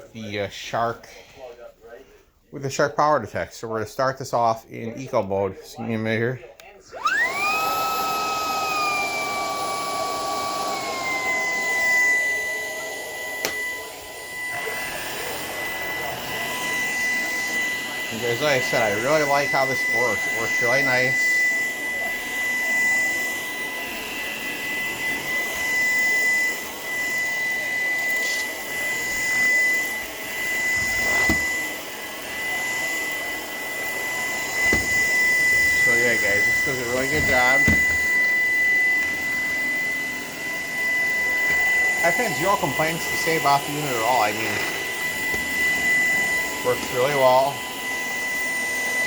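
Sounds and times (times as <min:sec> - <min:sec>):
vacuum cleaner motor whine: 0:06.6 - 0:49.0.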